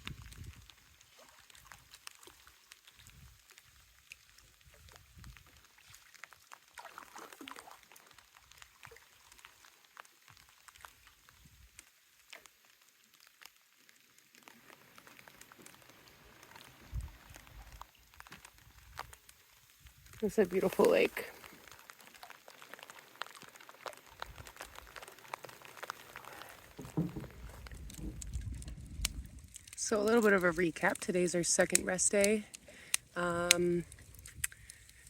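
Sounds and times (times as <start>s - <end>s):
wind on microphone: 0.0s - 0.8s, 4.6s - 5.6s, 16.8s - 17.8s, 26.8s - 30.5s
small clicks and ticks: 0.0s - 35.0s
low thump: 26.8s - 28.3s.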